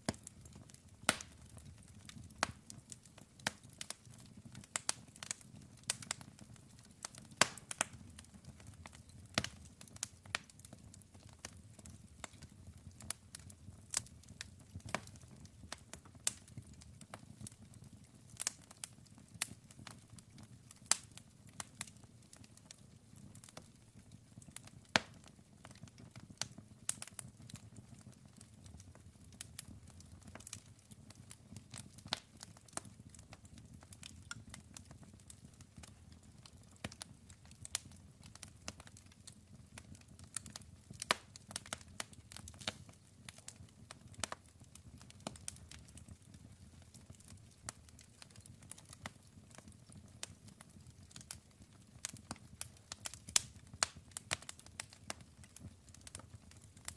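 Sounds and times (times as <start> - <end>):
fire crackling and popping: 0.0 - 56.9.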